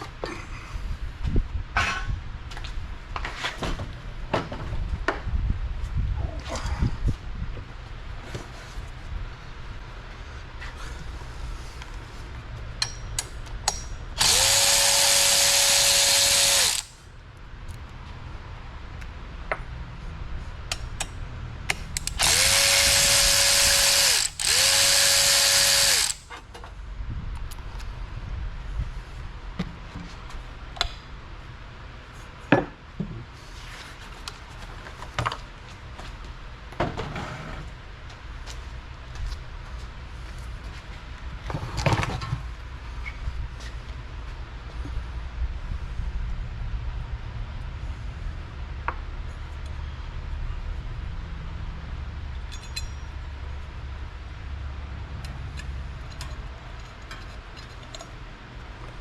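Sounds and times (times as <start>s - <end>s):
tools clicking: 12.8s - 17.0s, 21.7s - 26.3s
power tool whining: 14.2s - 17.0s, 22.0s - 26.3s.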